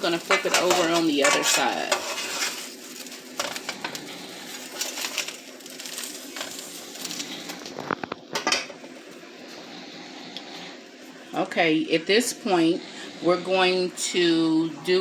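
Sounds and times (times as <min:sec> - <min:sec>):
spatula scraping a pan: 0:00.0 - 0:07.3
quesadilla sizzling in a frying pan: 0:00.0 - 0:09.7
steady low hum: 0:00.0 - 0:15.0.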